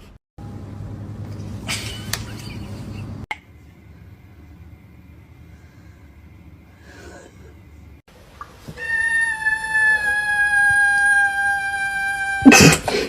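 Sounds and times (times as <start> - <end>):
cat yowling: 8.8 - 12.8.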